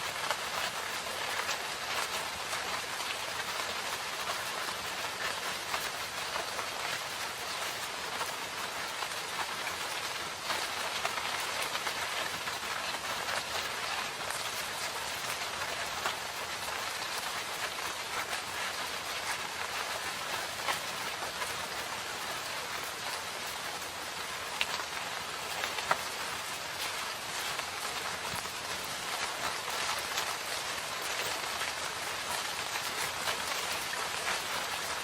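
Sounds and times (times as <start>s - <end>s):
drops pattering on leaves: 0.0s - 35.0s
rain falling in forest: 0.0s - 35.0s.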